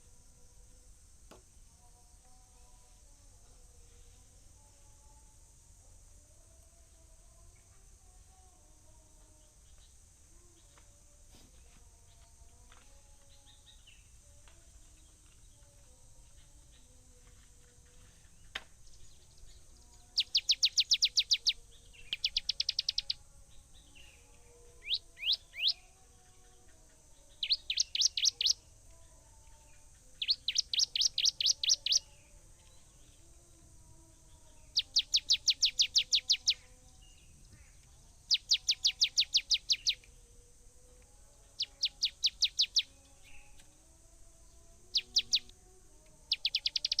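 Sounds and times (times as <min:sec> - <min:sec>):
bird singing fast trill: 0:18.8 - 0:28.7, 0:29.6 - 0:33.1, 0:34.3 - 0:37.2, 0:38.2 - 0:40.1, 0:41.4 - 0:43.6, 0:44.8 - 0:45.5, 0:46.2 - 0:47.0.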